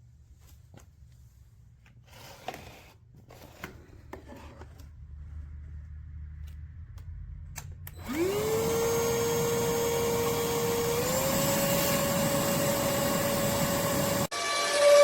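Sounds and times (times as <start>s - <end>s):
vacuum cleaner motor whine: 8.0s - 15.0s.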